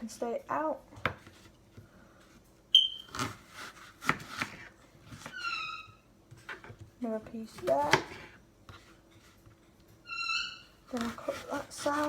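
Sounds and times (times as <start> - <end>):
knife chopping on plastic board: 3.1 - 5.3, 6.4 - 8.4.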